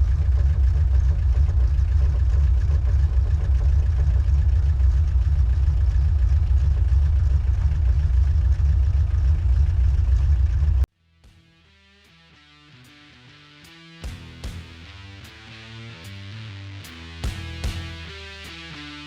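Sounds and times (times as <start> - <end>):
engine running with low rumble: 0.0 - 10.9.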